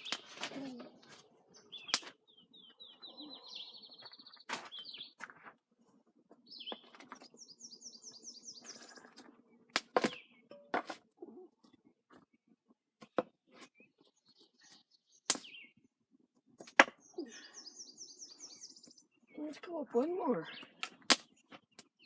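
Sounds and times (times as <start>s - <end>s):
songbird trilling: 17.0s - 19.7s.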